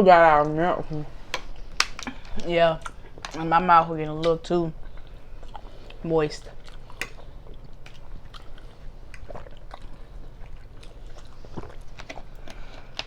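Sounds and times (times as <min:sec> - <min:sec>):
wet mouth clicks: 0:01.3 - 0:03.4, 0:04.2 - 0:13.0
chewing and biting food: 0:01.3 - 0:13.0.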